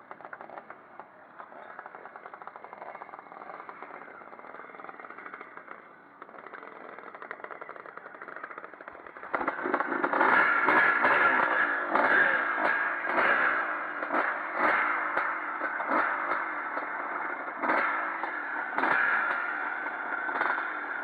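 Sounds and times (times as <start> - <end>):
motocross motorcycles racing: 0.1 - 21.0.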